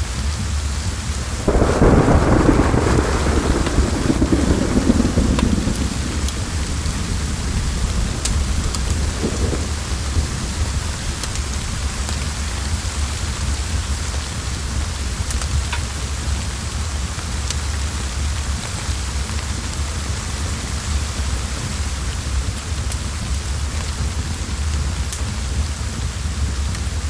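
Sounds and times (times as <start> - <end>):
heavy rain hissing: 0.0 - 27.0
wood fire crackling: 0.3 - 27.0
deep rumble: 0.6 - 15.2
thunder: 1.3 - 15.8.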